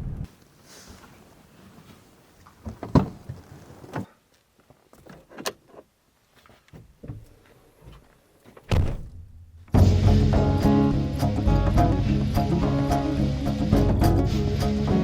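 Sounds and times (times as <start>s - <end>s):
loud thud: 8.7s - 10.0s.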